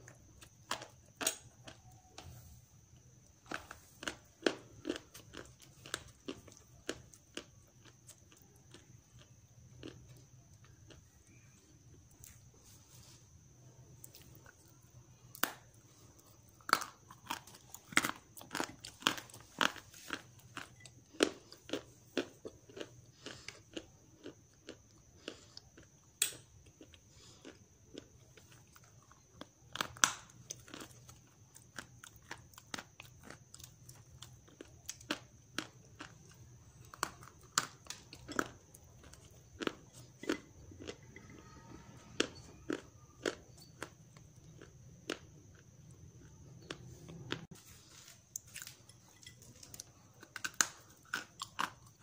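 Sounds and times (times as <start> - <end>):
faint high whine: 0.0 - 17.9
clay being chewed: 2.9 - 13.4, 14.0 - 52.0.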